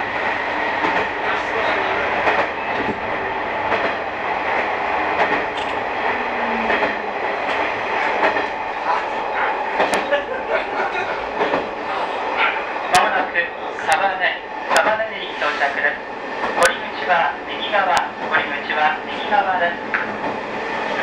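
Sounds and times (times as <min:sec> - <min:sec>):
train wheels rumbling on rail: 0:00.0 - 0:21.0
clacks over rail joints: 0:00.8 - 0:03.0, 0:03.6 - 0:05.8, 0:06.6 - 0:10.2, 0:10.9 - 0:11.7, 0:14.7 - 0:15.1, 0:19.8 - 0:20.4.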